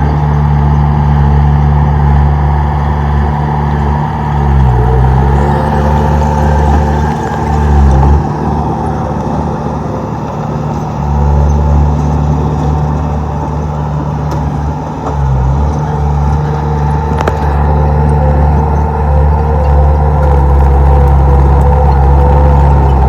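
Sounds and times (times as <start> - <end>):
bulldozer diesel engine running: 0.0 - 23.0.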